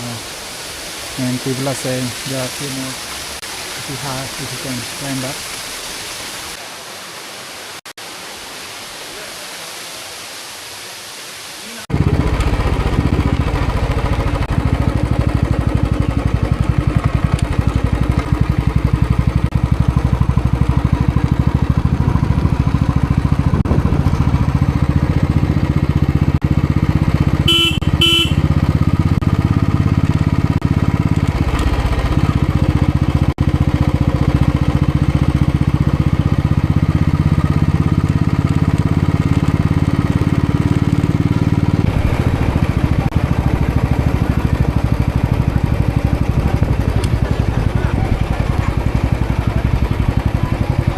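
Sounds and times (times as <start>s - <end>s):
motorcycle engine running: 11.9s - 50.9s
horn beeps: 27.4s - 28.6s.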